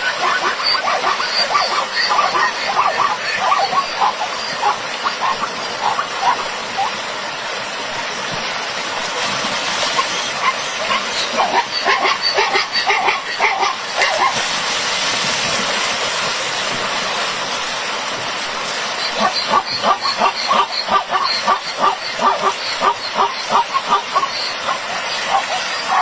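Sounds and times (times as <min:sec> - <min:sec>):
zebra yelping barks: 0:10.4 - 0:14.4.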